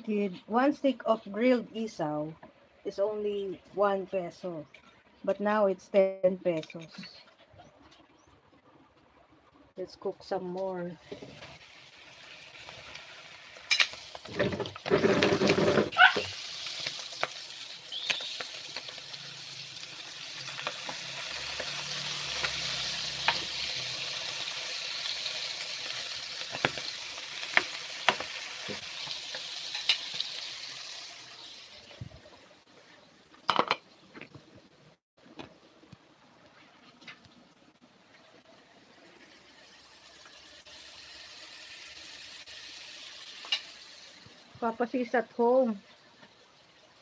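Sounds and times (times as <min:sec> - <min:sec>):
intestines sizzling in frying pan: 0:10.6 - 0:33.1, 0:38.1 - 0:47.0
oil crackling: 0:11.0 - 0:32.0.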